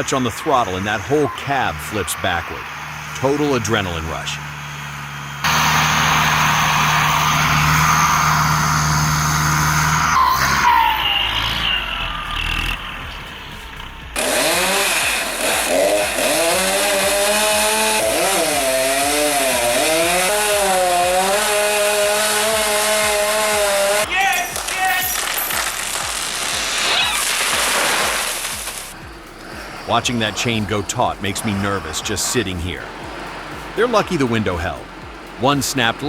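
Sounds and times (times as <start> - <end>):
chainsaw revving: 2.5 - 10.5, 12.2 - 36.0
loud steady machine noise: 2.7 - 7.8, 13.6 - 26.9.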